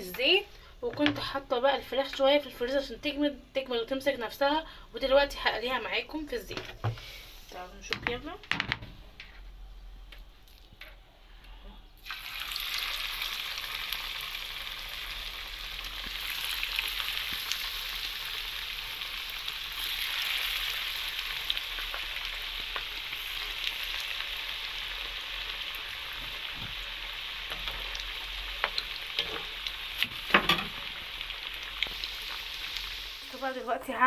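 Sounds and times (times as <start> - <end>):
chicken frying in hot oil: 12.0 - 33.7.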